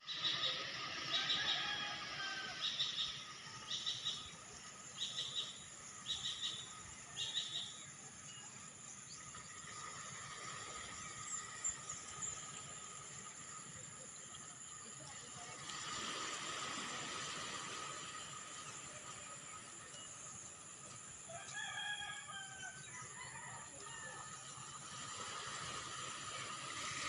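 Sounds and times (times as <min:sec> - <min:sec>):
bird chirping: 0:02.6 - 0:09.5.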